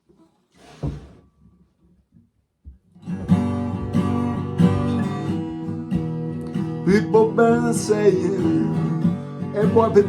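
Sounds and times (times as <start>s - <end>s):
thump: 0.6s - 1.2s
guitar strumming chords: 3.0s - 10.0s.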